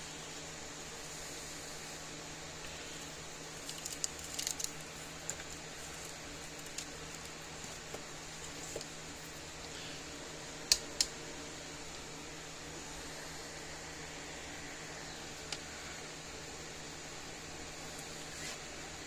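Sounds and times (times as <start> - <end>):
fan hum: 0.0 - 19.0
small parts clicking and tapping: 3.6 - 8.9.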